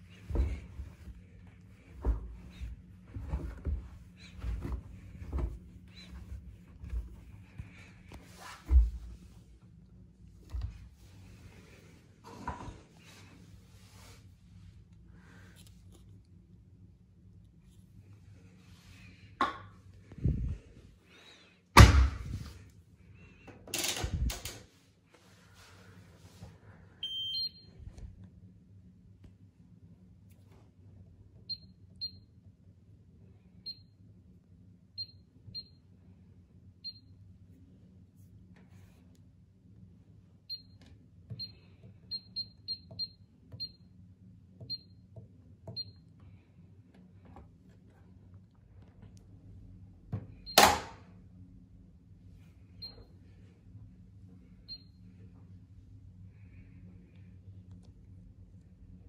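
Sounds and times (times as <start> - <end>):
low steady hum: 0.0 - 59.0
washing machine door slam: 21.8 - 22.4
washing machine button beeps: 27.0 - 27.7, 31.4 - 32.3, 40.5 - 40.8, 41.4 - 43.9, 44.6 - 45.0, 45.7 - 46.0, 50.3 - 51.0, 52.8 - 53.1, 54.7 - 55.0.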